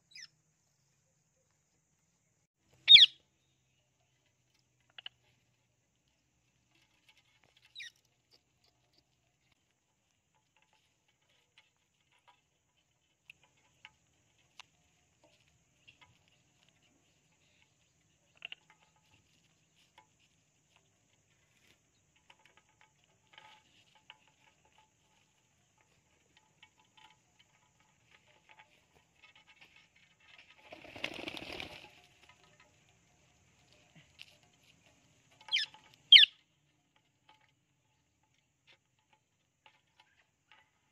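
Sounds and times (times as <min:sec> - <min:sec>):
rustle: 0:00.0 - 0:40.9
parrot rising chirp: 0:02.9 - 0:03.2, 0:35.5 - 0:36.3.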